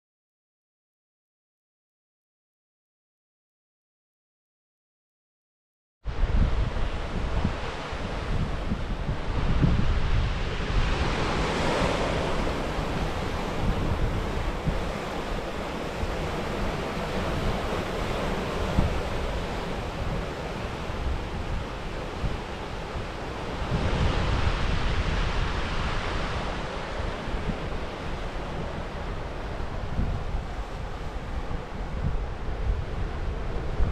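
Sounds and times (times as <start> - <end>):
wind buffeting microphone: 6.1 - 33.9
waves washing onto rocky shore: 10.2 - 31.7.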